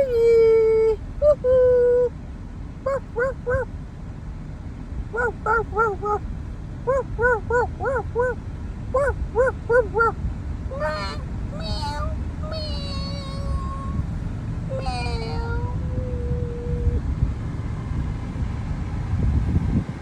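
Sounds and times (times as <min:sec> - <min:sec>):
dog whining and yipping: 0:02.9 - 0:03.7, 0:05.2 - 0:06.2, 0:06.9 - 0:08.4, 0:09.0 - 0:14.0, 0:14.7 - 0:17.0.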